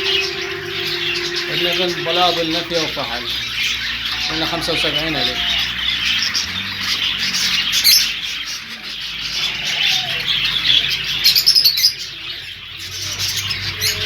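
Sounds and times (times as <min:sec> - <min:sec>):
sharp loud bird calls: 0:00.0 - 0:03.1
caged birds chirping: 0:00.0 - 0:14.0.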